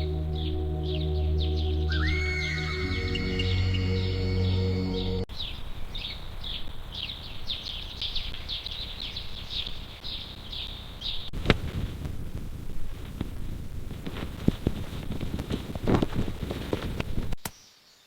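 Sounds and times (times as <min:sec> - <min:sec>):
low rumble: 0:00.0 - 0:05.3
soft music: 0:00.0 - 0:05.3
bird chirping: 0:00.0 - 0:11.3.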